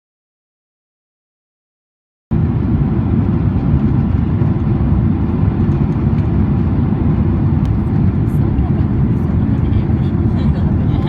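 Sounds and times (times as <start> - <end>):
airplane cabin engine rumble: 2.3 - 11.0.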